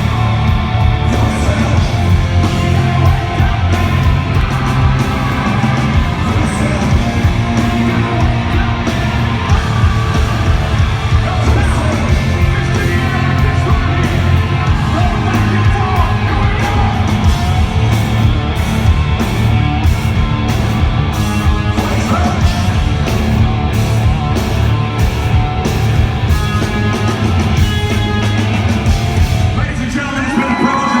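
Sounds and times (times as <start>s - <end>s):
steady drum beat: 0.0s - 30.0s
distorted electric guitars: 0.0s - 31.0s.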